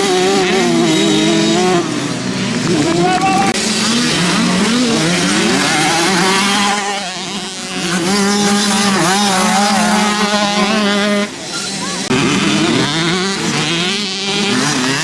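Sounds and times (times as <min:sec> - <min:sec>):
motorcycle engines revving: 0:00.0 - 0:15.0.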